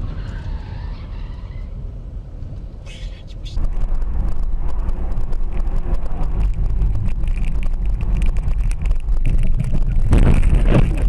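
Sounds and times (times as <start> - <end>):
car road and engine rumble: 0.0 - 11.0
wind buffeting microphone: 3.6 - 11.0.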